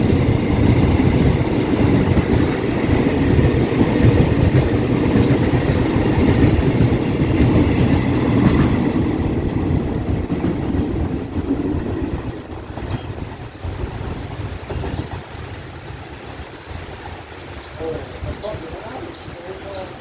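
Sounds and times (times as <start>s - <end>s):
train wheels clattering over rail joints: 0.0s - 15.8s.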